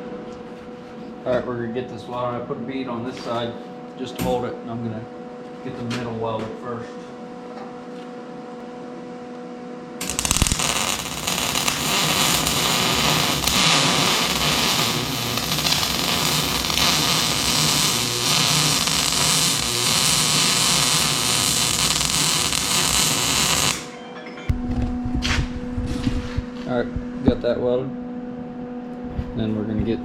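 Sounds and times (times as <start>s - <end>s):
arc welder crackling hiss: 10.0s - 23.9s.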